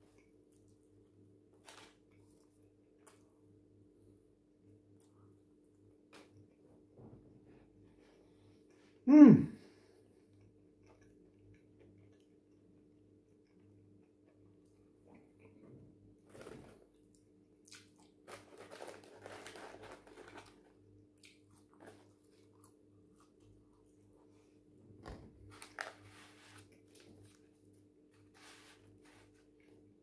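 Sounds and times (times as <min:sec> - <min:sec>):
crunching and chewing crispy food: 0:00.0 - 0:03.3, 0:16.2 - 0:24.2, 0:25.5 - 0:29.8.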